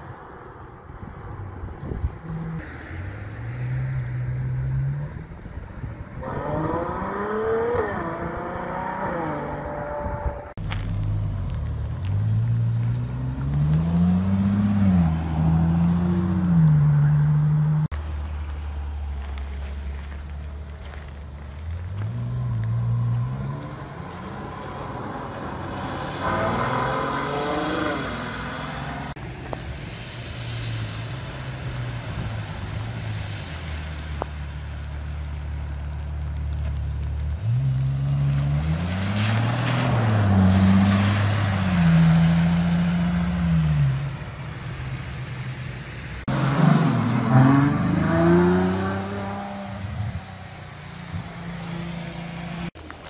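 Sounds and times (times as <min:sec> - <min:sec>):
tyre hiss on wet road: 0:18.0 - 0:53.0
car engine accelerating hard: 0:20.8 - 0:29.2, 0:46.2 - 0:52.8.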